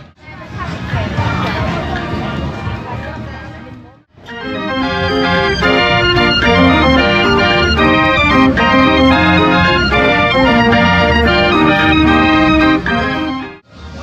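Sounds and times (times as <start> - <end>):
organ music with pulsing bass: 4.2 - 13.6.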